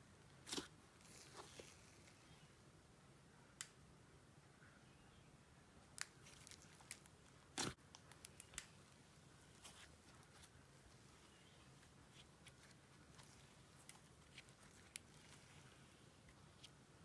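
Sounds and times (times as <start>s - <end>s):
slime crackle: 0.4s - 2.3s, 6.0s - 8.8s, 11.2s - 16.7s.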